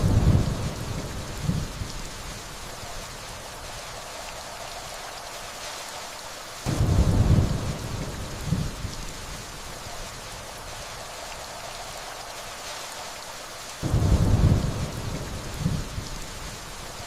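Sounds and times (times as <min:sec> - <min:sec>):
distant thunder rumble: 0:00.0 - 0:01.9, 0:06.7 - 0:09.4, 0:13.8 - 0:17.0
steady rainfall: 0:00.0 - 0:17.0.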